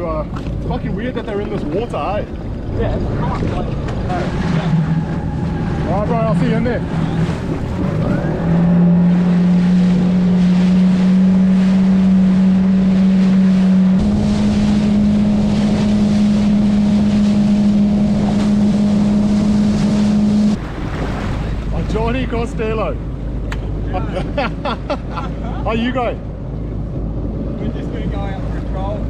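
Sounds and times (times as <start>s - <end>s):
jet ski engine running: 0.0s - 29.0s
water rushing past: 0.0s - 29.0s
wind on microphone: 1.6s - 22.4s.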